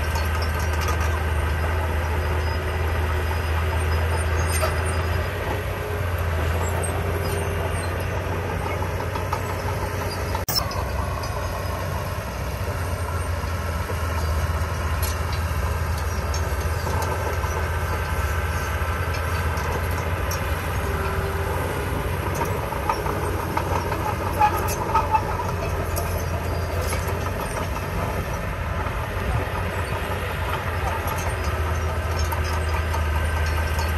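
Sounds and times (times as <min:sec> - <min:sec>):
heavy machinery diesel engine: 0:00.0 - 0:33.9.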